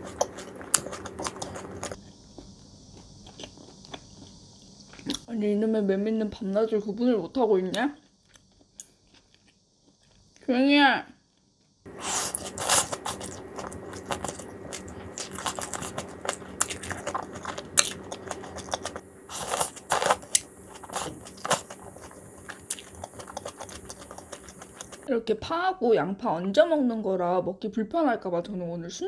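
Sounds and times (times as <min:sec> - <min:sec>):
crunching and chewing fried chicken: 0:00.0 - 0:05.3, 0:07.7 - 0:10.4, 0:11.2 - 0:25.1.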